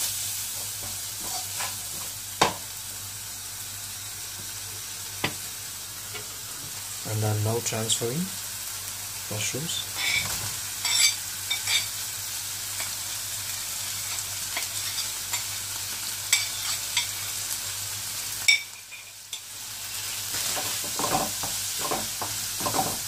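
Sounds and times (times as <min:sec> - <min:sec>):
mushrooms sizzling in a wok: 0:00.0 - 0:23.0
spatula stirring and scraping: 0:01.2 - 0:02.1, 0:13.8 - 0:15.6, 0:16.3 - 0:17.2.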